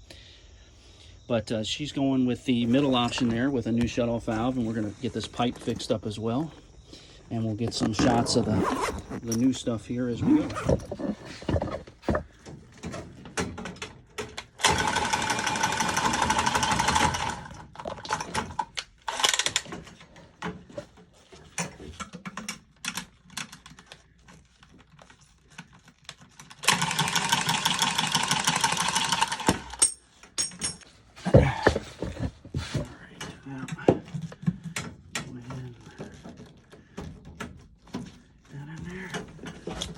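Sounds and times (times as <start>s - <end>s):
handling clicks and knocks: 2.5s - 14.6s, 17.7s - 27.3s, 29.3s - 39.9s
power tool motor rattling: 7.4s - 13.3s, 14.4s - 20.0s, 26.4s - 29.9s.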